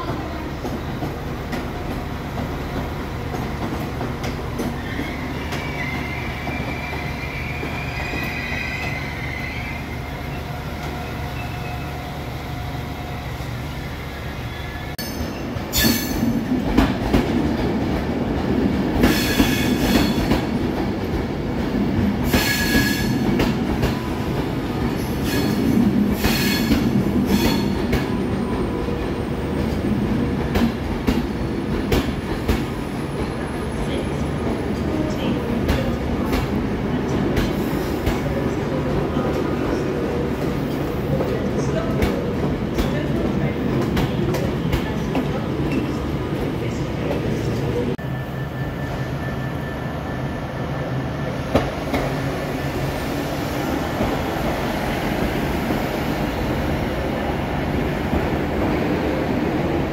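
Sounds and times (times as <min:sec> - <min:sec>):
train rolling slowly past: 0:00.0 - 0:59.9
train wheels squealing: 0:04.6 - 0:12.1, 0:14.0 - 0:16.3, 0:22.3 - 0:23.3, 0:25.0 - 0:28.6, 0:48.0 - 0:51.6.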